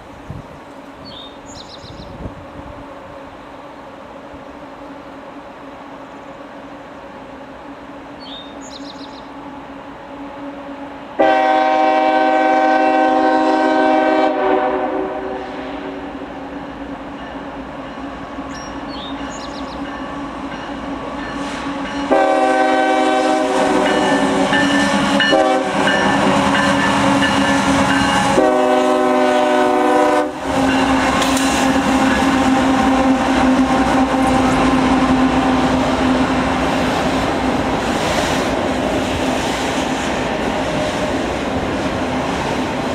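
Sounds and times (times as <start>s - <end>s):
train running past: 0.0s - 42.9s
locomotive air horn blasts: 10.0s - 16.8s, 21.4s - 36.6s.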